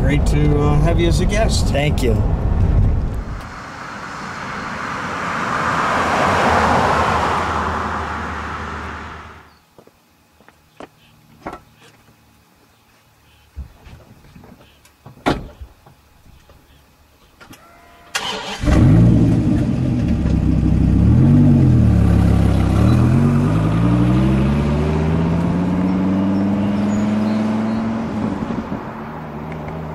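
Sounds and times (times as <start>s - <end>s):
car engine starting and revving: 2.2s - 9.5s, 18.2s - 29.9s.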